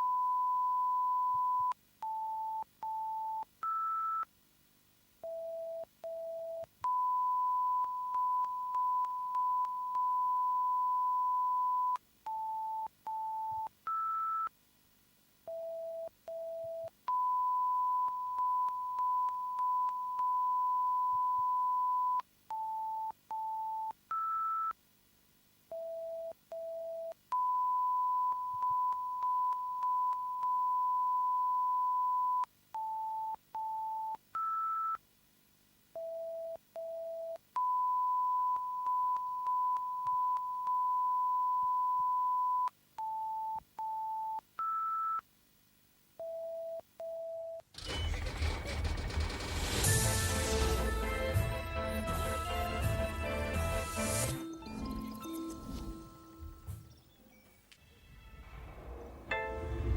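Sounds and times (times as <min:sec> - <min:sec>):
pure test tone beeps: 0:05.3 - 0:14.5, 0:15.5 - 0:24.7, 0:36.0 - 0:45.2.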